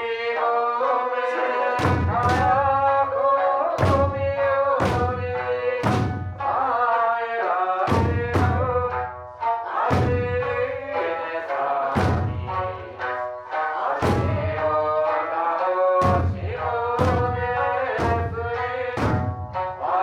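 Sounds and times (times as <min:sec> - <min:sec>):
person singing folk song: 0:00.0 - 0:20.0
plucked lute: 0:00.0 - 0:20.0
heavy taiko drum strokes: 0:01.8 - 0:06.8, 0:07.9 - 0:11.2, 0:11.9 - 0:13.4, 0:14.0 - 0:15.2, 0:16.0 - 0:20.0.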